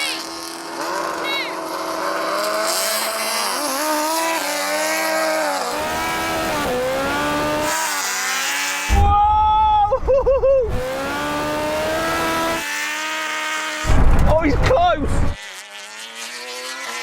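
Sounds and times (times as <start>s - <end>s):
racing engines accelerating: 0.0s - 9.1s, 10.5s - 17.0s
engine pulsing at high pitch: 0.0s - 17.0s.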